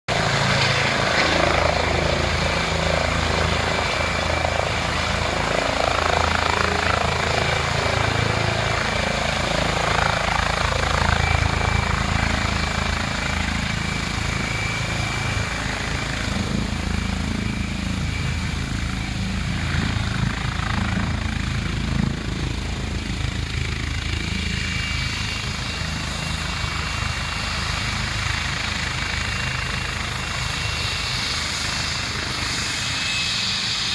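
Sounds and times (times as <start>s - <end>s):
helicopter rotor chop: 0.1s - 33.9s.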